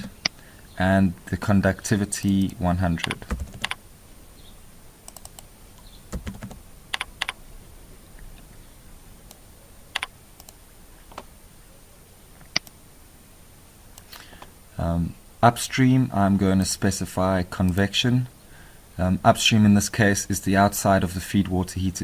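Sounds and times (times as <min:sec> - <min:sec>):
computer keyboard keystrokes: 0:02.3 - 0:03.8, 0:05.1 - 0:05.5, 0:06.1 - 0:07.4, 0:10.0 - 0:11.3.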